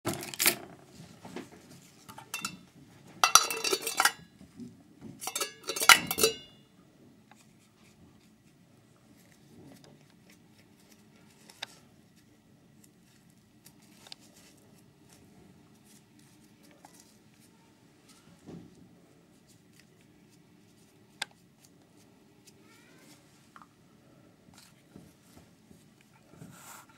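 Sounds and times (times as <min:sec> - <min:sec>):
tin can metal parts clinking: 0:00.1 - 0:00.6, 0:02.1 - 0:02.6, 0:03.2 - 0:04.2, 0:05.2 - 0:06.6.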